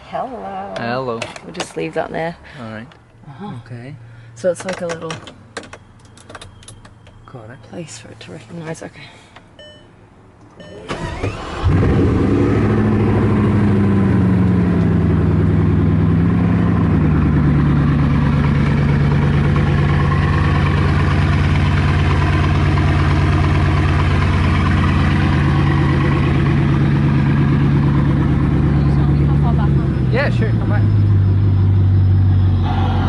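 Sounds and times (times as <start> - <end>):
car engine idling: 10.9 - 33.0.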